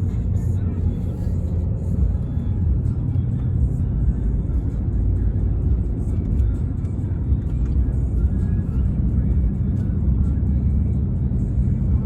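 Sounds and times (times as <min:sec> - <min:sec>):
pickup truck driving: 0:00.0 - 0:12.0
road noise inside vehicle: 0:00.0 - 0:12.0.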